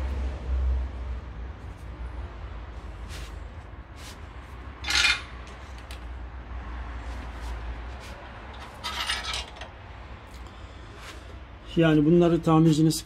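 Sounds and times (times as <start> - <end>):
wrench clinking and scraping on bolt: 4.8 - 6.0, 8.5 - 9.8.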